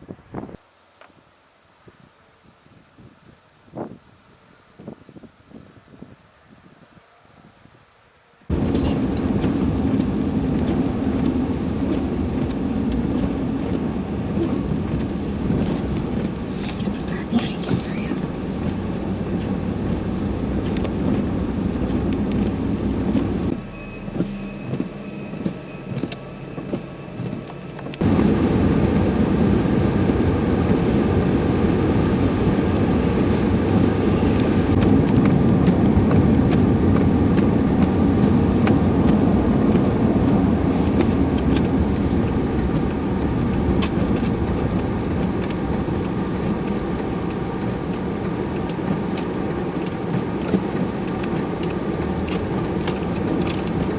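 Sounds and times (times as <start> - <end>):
vehicle engine and road noise: 0.0 - 53.9
faint ticks: 41.0 - 53.9.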